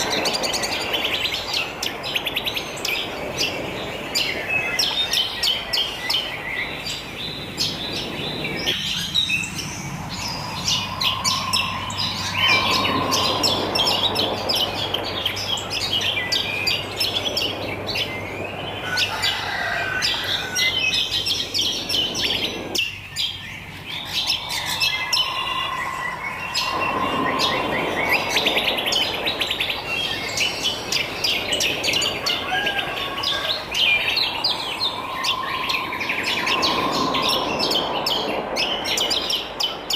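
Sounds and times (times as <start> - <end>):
songbirds chirping: 0.0 - 39.9
low whistled note: 24.2 - 29.2, 34.3 - 38.3.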